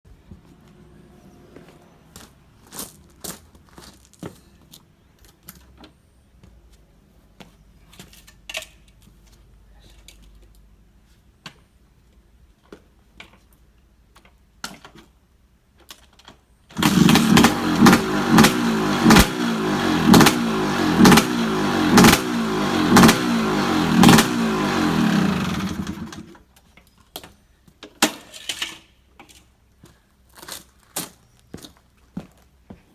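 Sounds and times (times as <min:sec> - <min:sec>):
engine starting and revving: 0:16.8 - 0:26.4.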